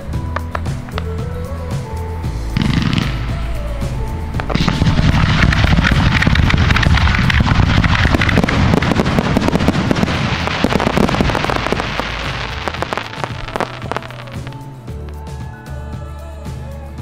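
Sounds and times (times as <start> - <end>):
fireworks bangs: 4.4 - 14.7.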